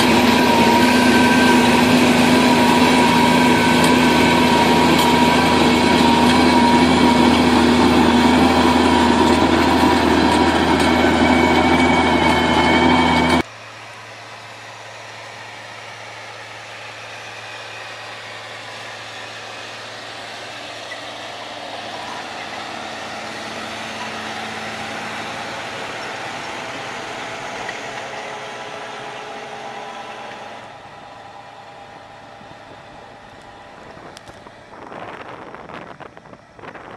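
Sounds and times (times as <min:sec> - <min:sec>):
machine engine running: 0:00.0 - 0:36.9.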